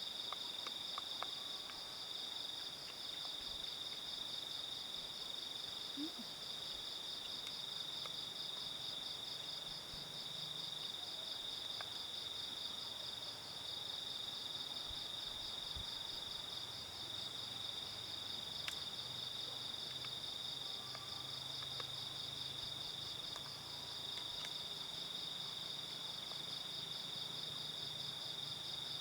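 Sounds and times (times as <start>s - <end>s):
faint clicks: 24.1s - 24.6s.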